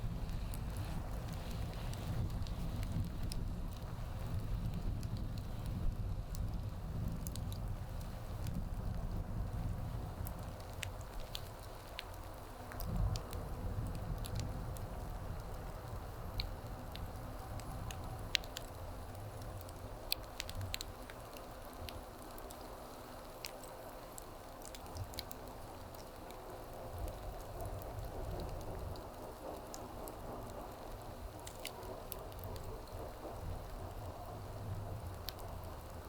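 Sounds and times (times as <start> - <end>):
wood fire crackling: 0.0 - 36.0
sharp pops and snaps: 9.8 - 34.3.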